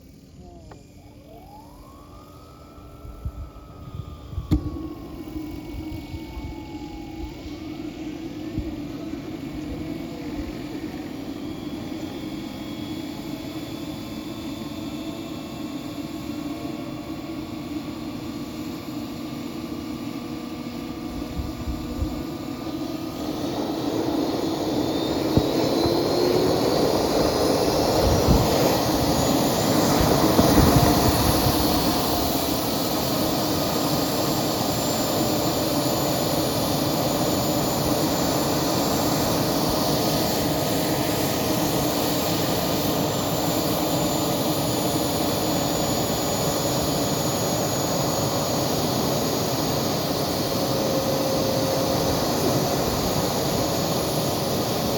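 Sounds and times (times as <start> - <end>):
turbine engine whine: 0.0 - 54.9.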